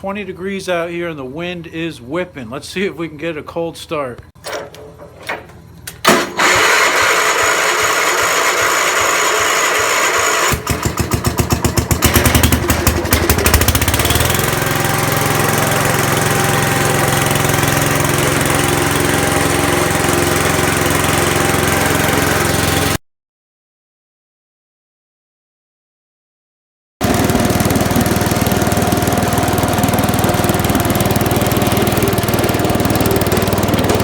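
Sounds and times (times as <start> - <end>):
tractor engine running: 4.2 - 23.0, 27.0 - 34.0
tractor engine cranking: 4.4 - 23.0, 27.0 - 34.0.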